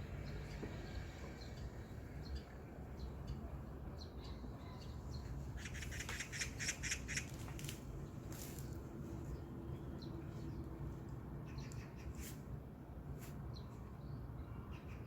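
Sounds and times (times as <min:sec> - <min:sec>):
birds chirping: 0:00.0 - 0:12.3
rapid rattling bird notes: 0:05.6 - 0:07.5.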